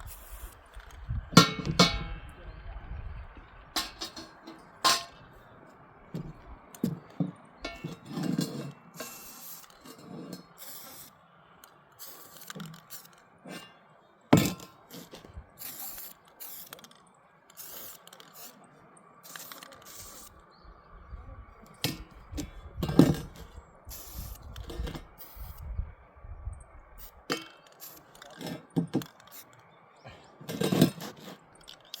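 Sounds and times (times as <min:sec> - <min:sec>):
knocks and clanks on metal: 0:01.4 - 0:02.3, 0:03.8 - 0:05.3, 0:06.1 - 0:09.2, 0:14.4 - 0:15.2, 0:21.8 - 0:23.5
hiss: 0:09.0 - 0:09.8, 0:10.6 - 0:11.2, 0:12.0 - 0:13.1, 0:15.6 - 0:16.8, 0:17.6 - 0:18.6, 0:19.2 - 0:20.3, 0:23.9 - 0:24.5.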